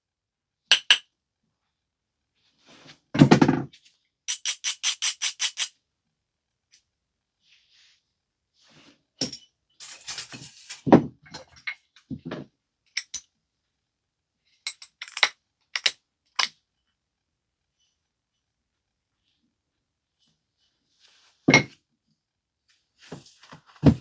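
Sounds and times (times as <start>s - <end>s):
stone scraping: 9.8s - 10.9s.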